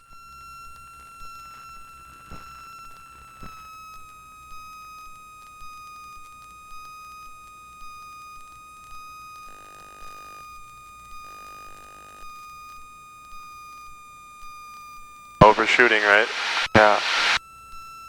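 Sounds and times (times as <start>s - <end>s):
buzzy tones: 15.4s - 17.4s
steady high whine: 15.4s - 17.4s.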